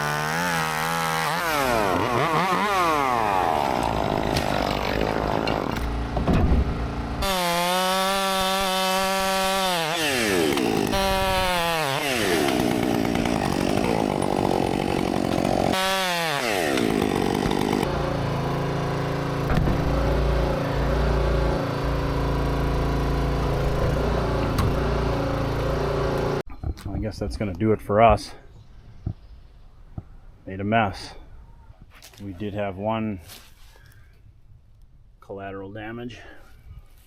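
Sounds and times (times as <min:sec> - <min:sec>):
chainsaw revving: 0:00.0 - 0:06.2, 0:06.8 - 0:26.4
low rumbling engine: 0:05.2 - 0:07.2, 0:17.8 - 0:26.4.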